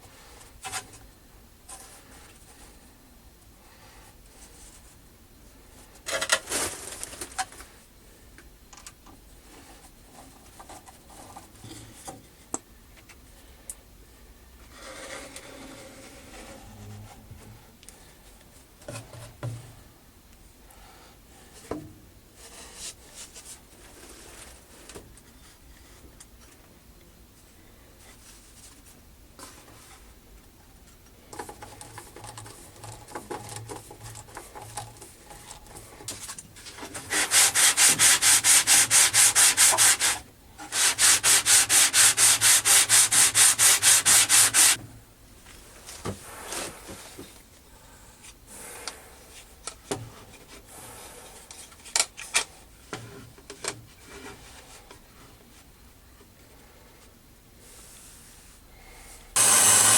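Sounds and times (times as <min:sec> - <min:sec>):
quiet scraping: 0:14.6 - 0:17.7
abrasive rubbing strokes: 0:37.0 - 0:44.8.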